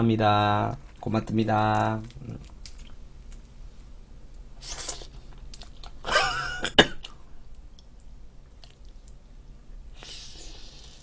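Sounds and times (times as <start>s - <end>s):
chewing with wet mouth clicks: 2.0s - 3.4s, 4.7s - 6.0s, 7.0s - 9.2s.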